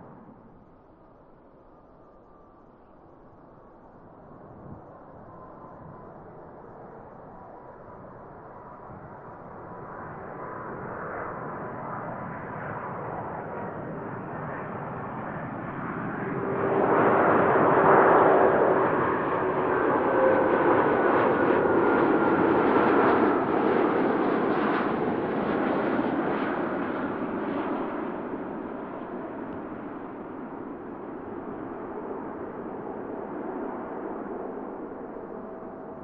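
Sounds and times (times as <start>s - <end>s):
jet engines roaring: 13.3s - 36.0s.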